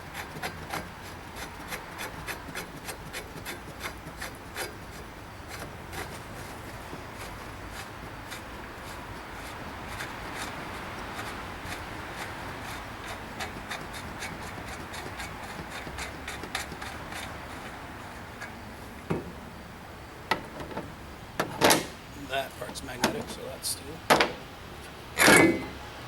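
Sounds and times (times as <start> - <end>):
metal rubbing and scraping: 0.1 - 18.6, 25.2 - 25.8.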